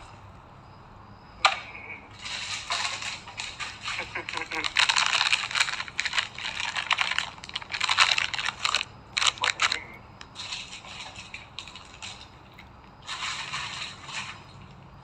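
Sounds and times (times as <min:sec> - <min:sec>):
snack packaging crinkling: 0:02.2 - 0:14.9.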